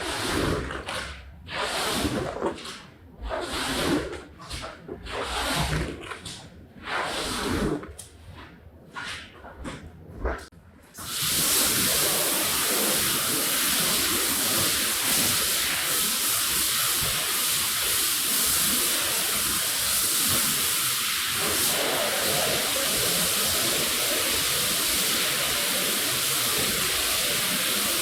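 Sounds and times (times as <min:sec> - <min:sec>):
pressurised water jet hissing: 0:11.0 - 0:28.0.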